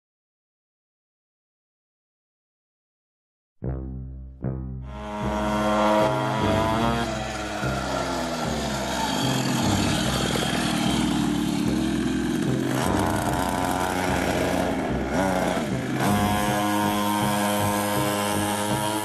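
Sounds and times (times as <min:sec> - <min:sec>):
small two-stroke engine revving: 0:04.9 - 0:19.0.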